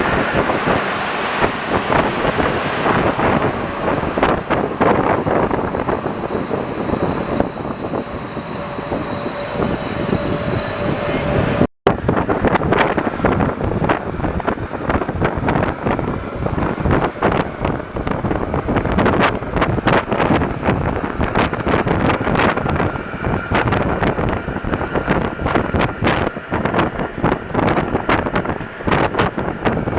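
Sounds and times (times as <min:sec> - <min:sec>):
metro train running: 0:00.0 - 0:29.9
train rattling and clatter: 0:00.0 - 0:29.9
faint high tone: 0:03.6 - 0:11.7.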